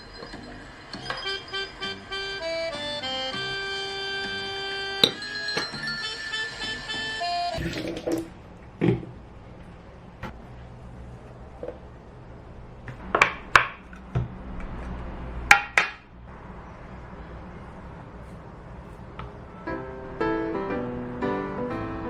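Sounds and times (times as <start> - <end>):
dishes and utensils clinking: 5.0 - 6.2.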